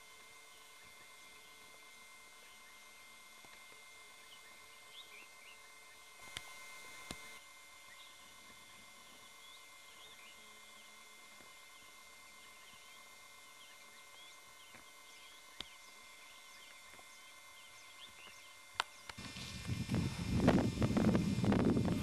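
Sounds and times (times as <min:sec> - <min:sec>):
faint bird chirps: 0:04.1 - 0:06.2, 0:07.8 - 0:19.2
steady hiss: 0:18.7 - 0:22.0.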